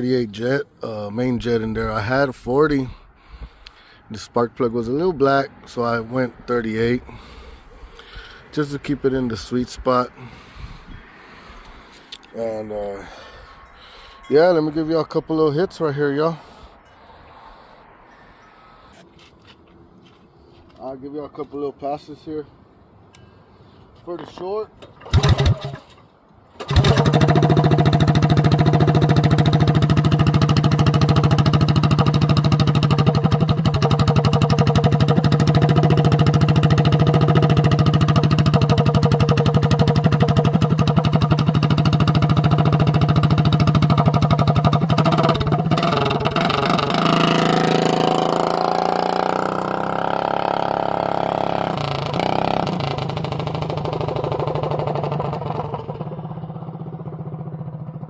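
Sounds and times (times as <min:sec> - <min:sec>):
minibike engine at high revs: 0:25.0 - 0:25.8, 0:26.6 - 0:58.0.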